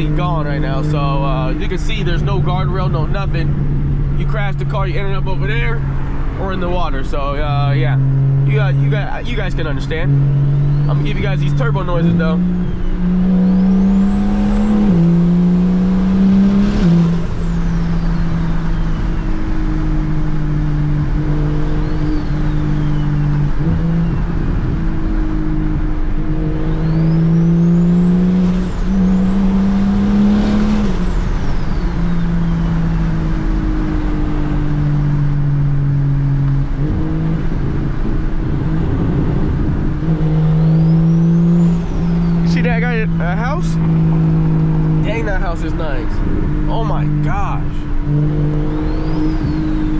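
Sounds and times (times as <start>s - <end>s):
car engine accelerating: 0.0s - 49.9s.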